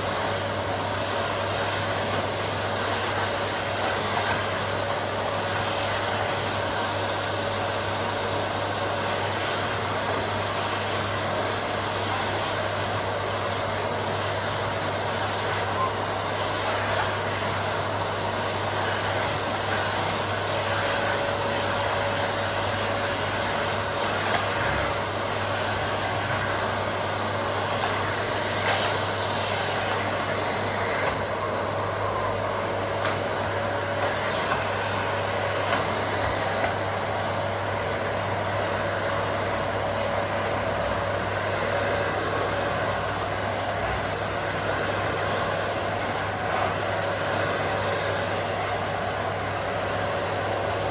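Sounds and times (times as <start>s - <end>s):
vacuum cleaner running: 0.0s - 50.9s.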